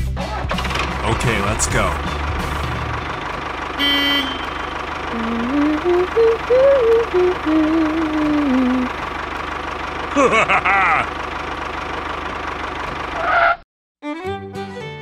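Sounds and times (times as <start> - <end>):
tractor engine chugging: 0.3 - 13.6
tune of held notes: 1.1 - 9.0
horn toot: 3.8 - 4.8.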